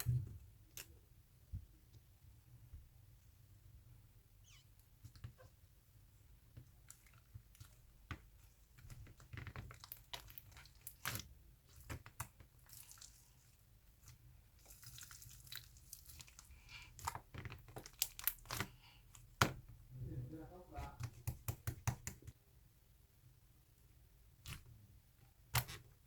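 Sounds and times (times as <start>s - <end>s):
slime squished by hand: 6.8s - 19.6s.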